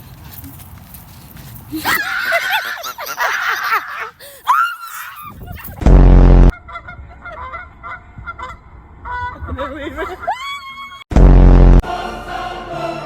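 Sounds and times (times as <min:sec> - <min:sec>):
loud harsh buzz: 0:05.8 - 0:06.5, 0:11.1 - 0:11.9.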